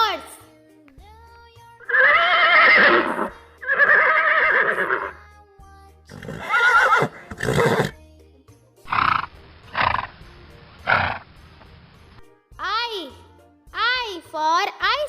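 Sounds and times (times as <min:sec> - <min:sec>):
soft background music: 0:00.0 - 0:15.0
horse whinnying: 0:01.9 - 0:05.1, 0:06.1 - 0:08.0, 0:08.9 - 0:10.1, 0:10.9 - 0:11.2.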